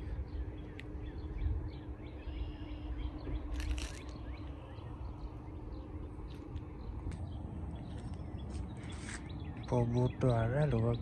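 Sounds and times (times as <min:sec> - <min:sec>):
faint birds chirping: 0:00.0 - 0:11.0
low microphone rumble: 0:00.0 - 0:11.0.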